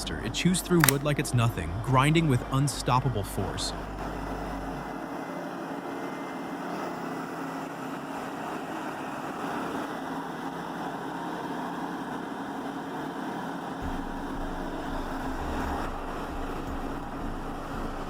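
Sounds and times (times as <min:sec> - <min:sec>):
deep rumble: 0:00.0 - 0:05.2, 0:13.8 - 0:18.0.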